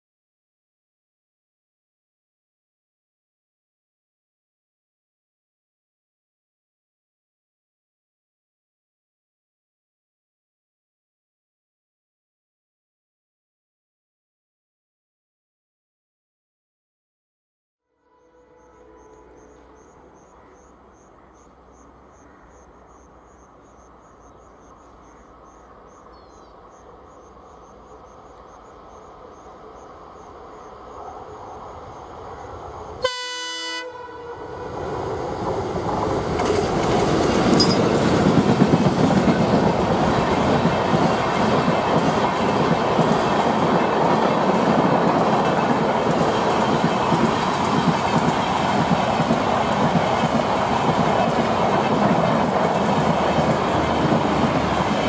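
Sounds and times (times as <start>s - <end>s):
train horn blast: 17.8s - 20.2s, 33.0s - 34.7s
diesel locomotive approaching: 17.9s - 55.0s
wheels clattering over rails: 35.4s - 55.0s.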